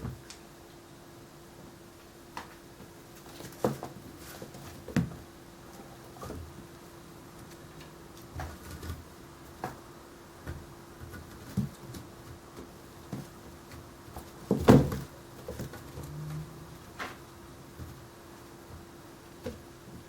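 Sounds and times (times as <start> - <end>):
faint steady hum: 0.0 - 20.0
kittens' paws scuffling: 2.3 - 6.7, 7.4 - 16.4.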